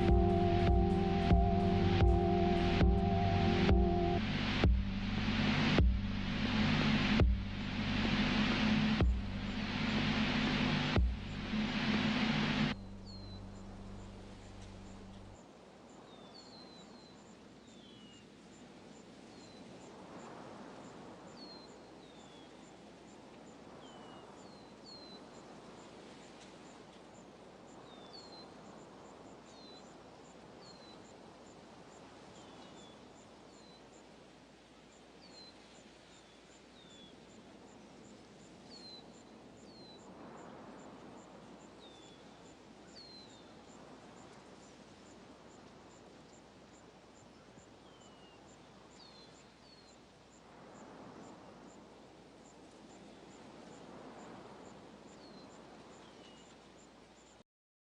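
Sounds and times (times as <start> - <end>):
soft hiss: 0.0 - 57.4
small birds chirping: 12.6 - 15.4.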